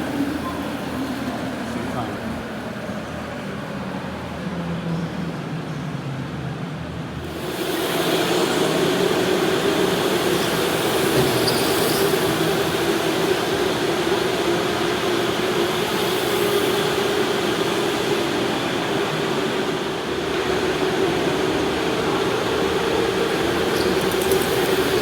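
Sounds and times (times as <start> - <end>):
electric go-kart motor hum: 7.2 - 25.0.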